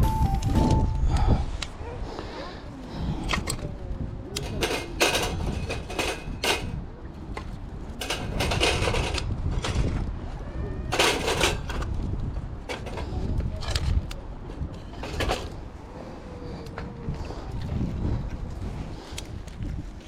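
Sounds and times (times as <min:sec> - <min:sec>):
wind rumble on microphone: 0:00.0 - 0:20.0
camping gear clinking and rattling: 0:04.3 - 0:06.8, 0:08.0 - 0:09.9.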